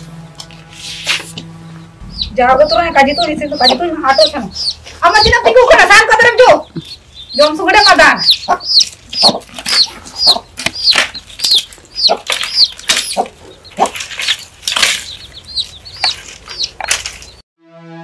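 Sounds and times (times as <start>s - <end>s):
birds chirping: 0.0s - 17.4s
sharp rustles and clatters: 8.7s - 17.4s.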